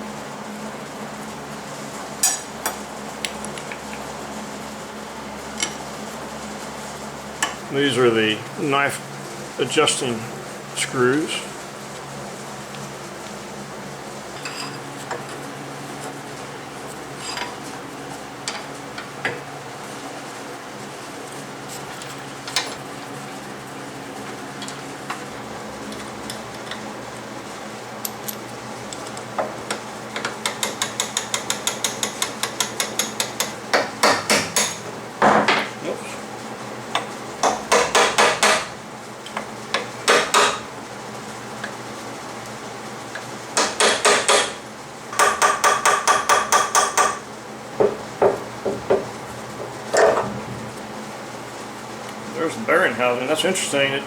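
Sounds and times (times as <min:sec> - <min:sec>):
hammer striking metal: 0:43.6 - 0:44.6.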